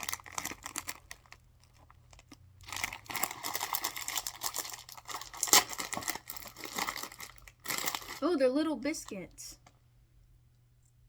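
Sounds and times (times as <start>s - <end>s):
snack wrapper crinkling: 0.0s - 8.2s.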